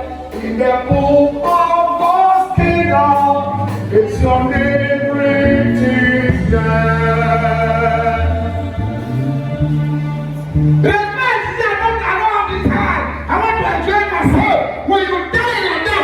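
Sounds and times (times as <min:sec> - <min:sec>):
musical accompaniment: 0:00.0 - 0:16.0
voices singing a gospel hymn: 0:00.0 - 0:16.0.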